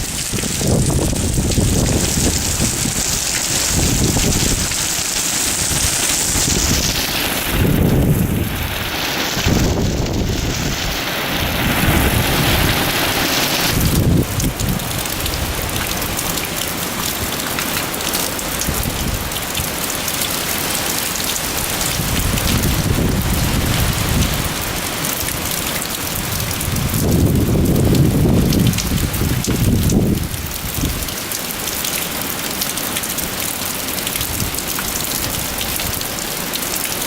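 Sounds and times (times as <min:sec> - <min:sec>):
low rumbles: 0:00.0 - 0:15.9
heavy rain pouring: 0:00.0 - 0:37.0.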